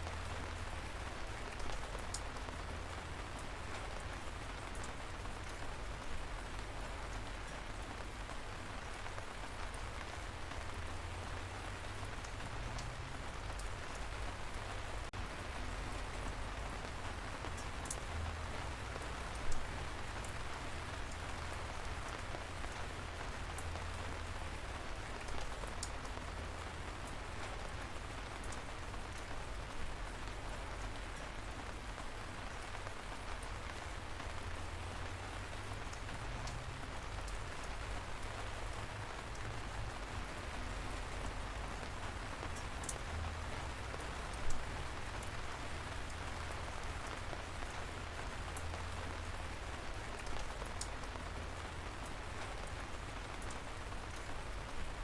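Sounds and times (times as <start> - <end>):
light rain falling: 0.0 - 55.0
single raindrops ticking: 32.6 - 55.0.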